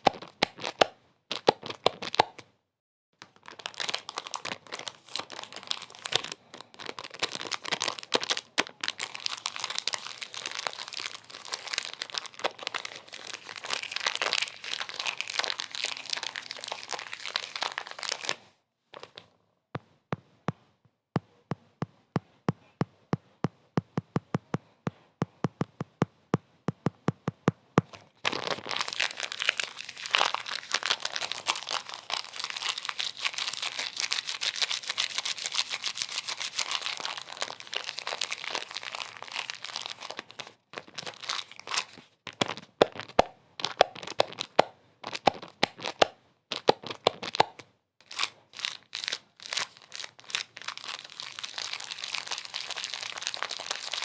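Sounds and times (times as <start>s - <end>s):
dense crinkling and crackling: 3.2s - 19.3s, 27.9s - 42.7s, 48.2s - 54.0s.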